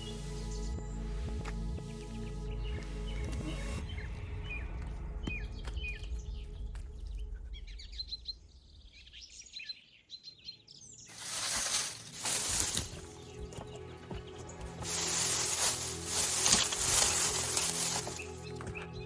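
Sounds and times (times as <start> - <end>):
small birds chirping: 7.8 - 19.0.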